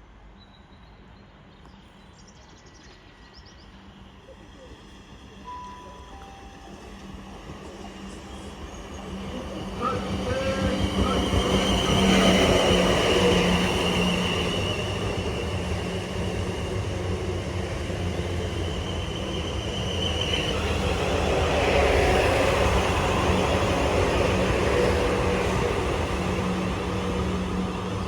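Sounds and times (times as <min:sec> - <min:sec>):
train low hum: 0:00.0 - 0:28.0.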